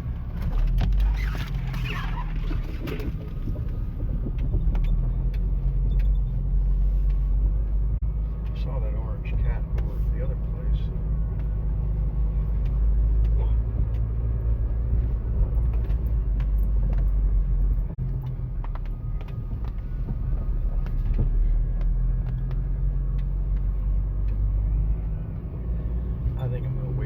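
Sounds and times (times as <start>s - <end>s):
vehicle engine and road rumble: 0.0s - 27.0s
knocks and rattles from bumps: 11.0s - 25.6s.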